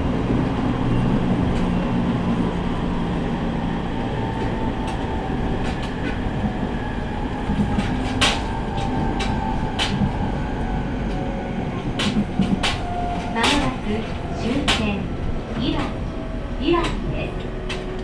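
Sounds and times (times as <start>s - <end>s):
train cabin rumble: 0.0s - 18.0s
wheels clacking over rail joints: 4.2s - 10.3s, 11.0s - 18.0s.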